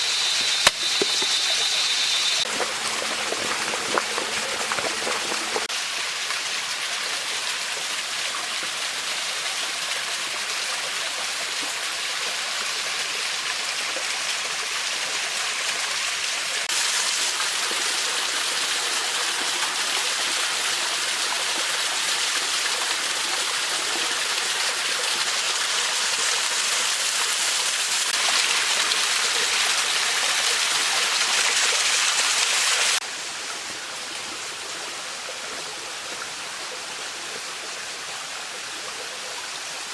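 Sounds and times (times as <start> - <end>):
mountain stream rushing: 0.0 - 10.9.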